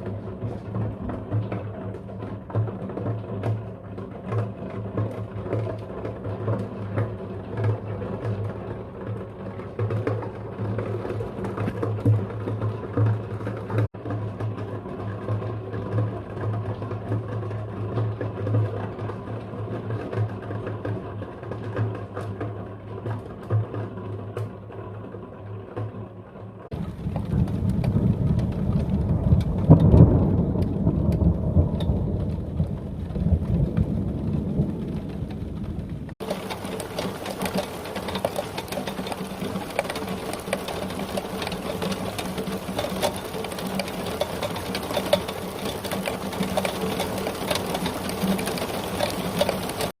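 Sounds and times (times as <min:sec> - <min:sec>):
raindrops ticking on hard surface: 0:00.0 - 0:23.9, 0:26.7 - 0:50.0
thunder rumbling: 0:26.7 - 0:49.9
heavy rain: 0:26.7 - 0:50.0.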